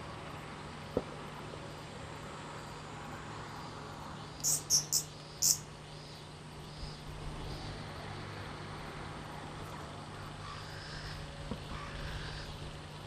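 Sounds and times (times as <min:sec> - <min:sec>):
faint steady hum: 0:00.0 - 0:13.0
short high chirps: 0:04.4 - 0:05.6.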